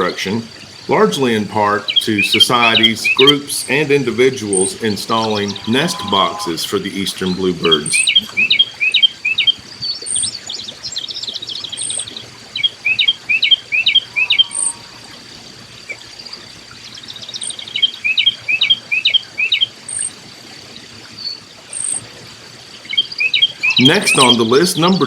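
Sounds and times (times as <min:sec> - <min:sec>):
high insect drone: 0:00.0 - 0:25.0
songbird chirping: 0:00.0 - 0:25.0
very high peep: 0:00.9 - 0:08.3, 0:23.6 - 0:25.0.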